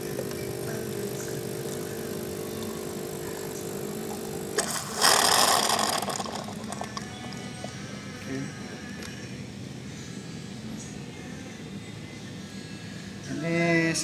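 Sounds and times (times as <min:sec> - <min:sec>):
espresso machine pump humming: 0:00.0 - 0:09.2.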